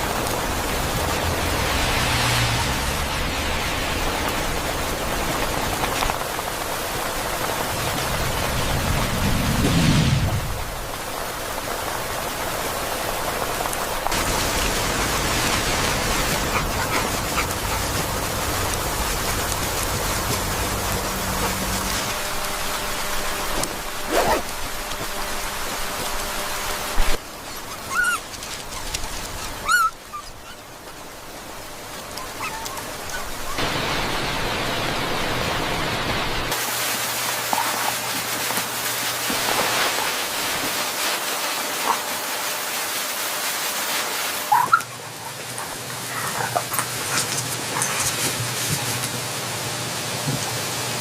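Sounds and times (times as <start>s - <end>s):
heavy rain falling: 0.0s - 51.0s
low hum: 14.2s - 27.2s.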